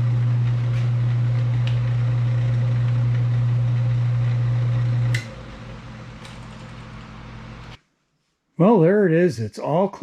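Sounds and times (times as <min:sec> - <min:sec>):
lathe motor humming: 0:00.0 - 0:07.8
switch click: 0:05.1 - 0:05.4.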